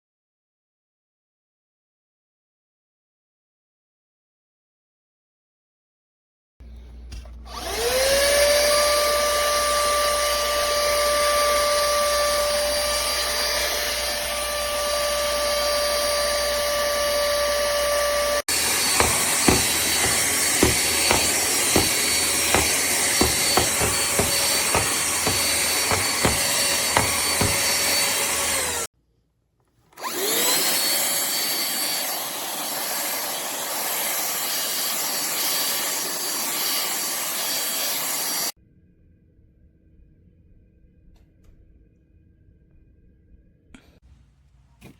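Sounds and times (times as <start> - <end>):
handheld vacuum whine: 6.6 - 28.9, 29.9 - 38.6.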